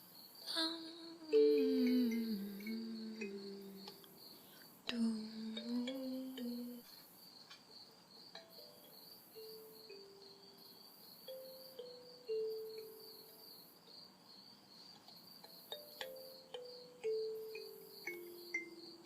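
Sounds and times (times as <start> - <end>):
night insects chirping: 0.0 - 19.0
soft slow melody: 0.5 - 4.3, 4.9 - 6.9, 8.4 - 10.6, 11.2 - 13.4, 15.5 - 19.0.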